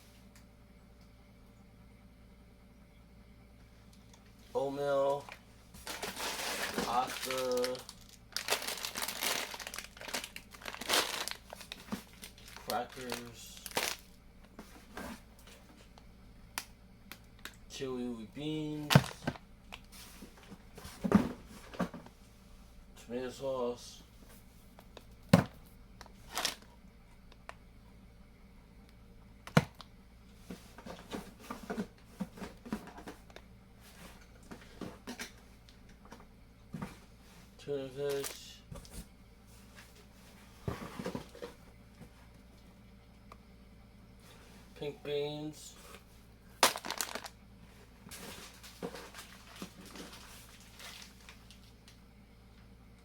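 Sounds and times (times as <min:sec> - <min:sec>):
packages rustling: 0:04.5 - 0:16.0, 0:18.8 - 0:22.1, 0:26.0 - 0:26.7, 0:46.6 - 0:51.9
food packages clattering: 0:05.3 - 0:14.1, 0:18.8 - 0:19.4, 0:26.2 - 0:26.7, 0:46.6 - 0:47.3, 0:48.1 - 0:51.7.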